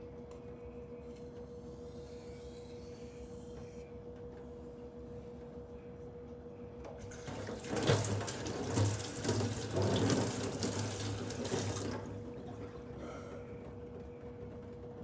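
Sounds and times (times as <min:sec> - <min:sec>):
water running: 0:07.0 - 0:13.3.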